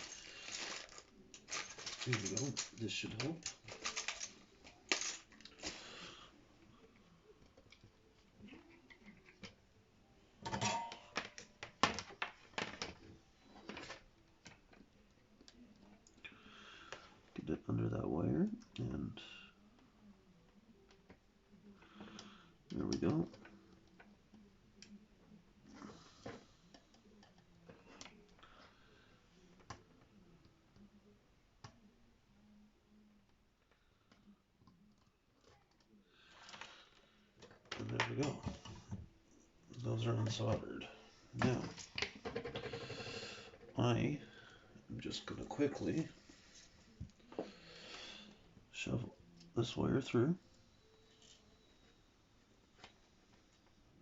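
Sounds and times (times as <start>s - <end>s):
hand tools clicking and rattling: 0.0s - 5.9s.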